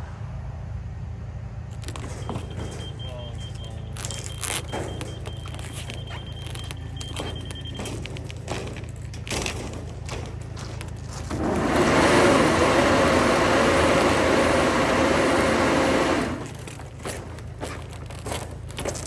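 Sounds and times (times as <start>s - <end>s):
diesel truck engine running: 0.0s - 19.0s
knocks and clatter: 1.7s - 19.0s
high-pitched beeping: 2.2s - 8.6s.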